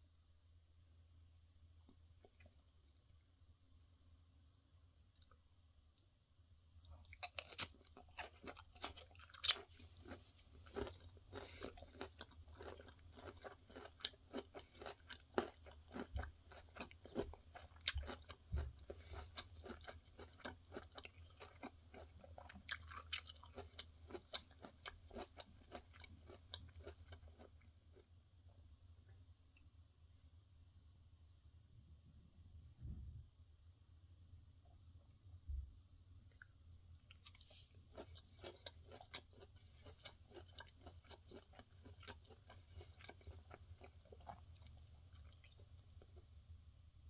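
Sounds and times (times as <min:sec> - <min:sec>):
chewing with wet crunches: 0:06.8 - 0:28.1, 0:36.3 - 0:46.3.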